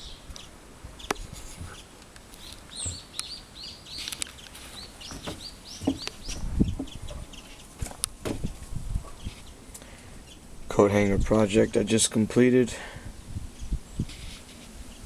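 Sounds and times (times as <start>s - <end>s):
small bird chirping: 0.0s - 7.8s
sharp knocks and low thumps: 5.1s - 9.0s.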